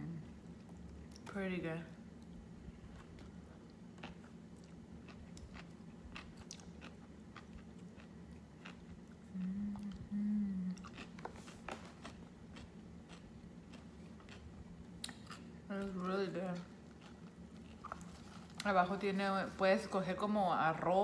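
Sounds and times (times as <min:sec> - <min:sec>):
person chewing crunchy greens: 0:02.2 - 0:18.7
person humming mm: 0:09.3 - 0:11.0.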